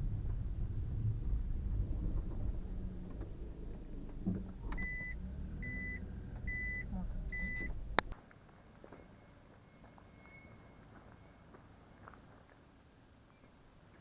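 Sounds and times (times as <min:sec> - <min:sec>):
car engine running: 0:00.0 - 0:08.1
car warning chime beeps: 0:04.7 - 0:07.8.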